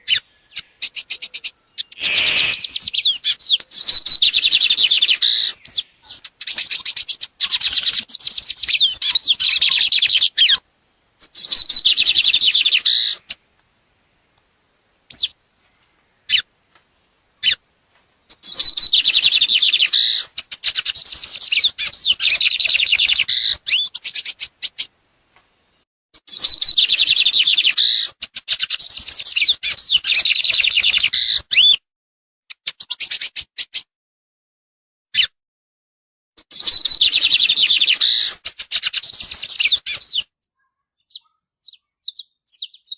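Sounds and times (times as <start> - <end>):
songbird warbling song: 0.0 - 31.8, 36.4 - 42.9
brief single bird notes: 1.8 - 3.1.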